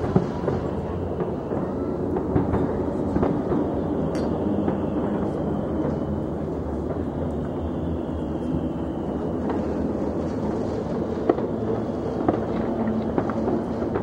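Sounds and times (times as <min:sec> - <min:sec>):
distant fireworks rumbling: 0:00.0 - 0:14.0
fireworks sharp cracks: 0:00.0 - 0:14.0.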